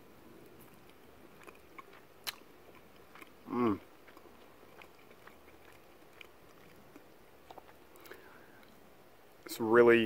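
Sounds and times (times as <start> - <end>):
man chewing food: 0.0 - 9.5
man humming mm: 3.5 - 3.8.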